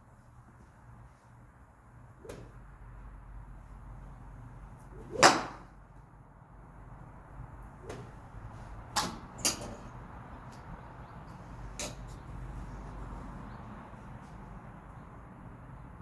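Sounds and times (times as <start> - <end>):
golf clubs striking balls: 2.2 - 2.6, 4.8 - 5.7, 7.7 - 10.7, 11.6 - 12.2.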